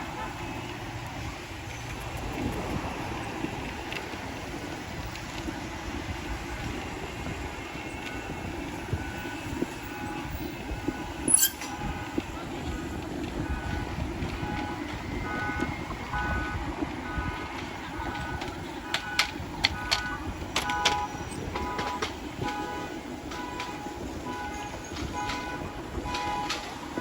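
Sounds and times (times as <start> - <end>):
motorbike road and wind noise: 0.0 - 27.0
sharp squeak: 11.2 - 11.7
short electronic beeping: 11.3 - 11.7.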